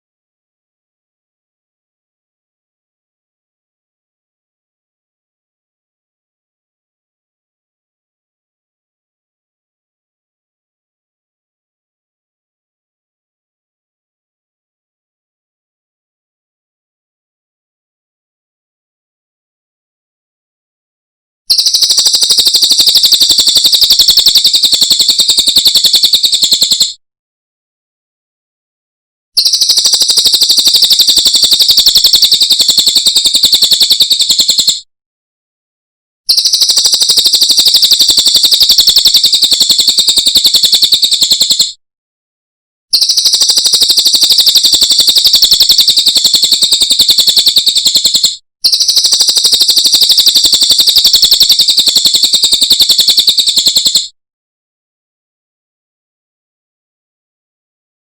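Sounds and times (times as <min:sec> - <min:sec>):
bird high-pitched trills: 0:21.5 - 0:26.9, 0:29.4 - 0:34.8, 0:42.9 - 0:54.0.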